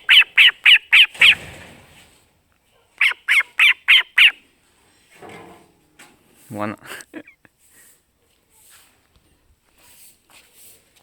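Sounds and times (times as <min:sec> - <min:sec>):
faint rustle: 0:07.5 - 0:11.0.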